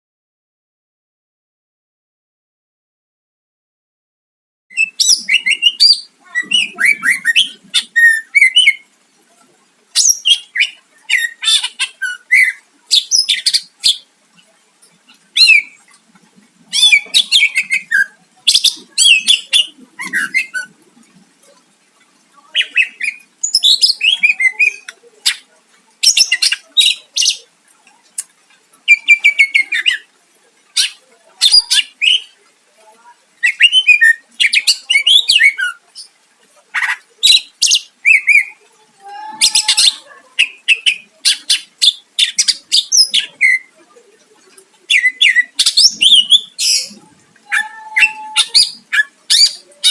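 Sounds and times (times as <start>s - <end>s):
bird chattering and whistling: 4.7s - 8.9s, 10.0s - 14.1s, 15.1s - 15.8s, 16.7s - 20.8s, 22.5s - 27.5s, 30.7s - 32.4s, 33.4s - 36.1s, 36.8s - 38.6s, 39.4s - 43.7s, 44.9s - 49.9s.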